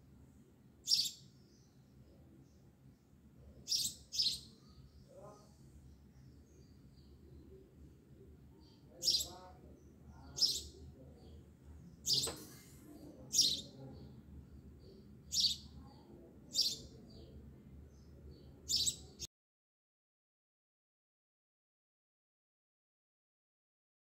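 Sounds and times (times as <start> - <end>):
low steady hum: 0.0 - 18.8
bird chirping: 0.8 - 2.7, 3.5 - 7.6, 8.6 - 19.3.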